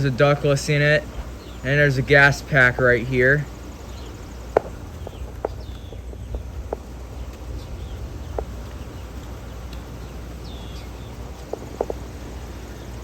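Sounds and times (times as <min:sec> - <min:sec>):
air conditioner units humming: 0:00.0 - 0:13.0
faint bird chirps: 0:03.8 - 0:13.0.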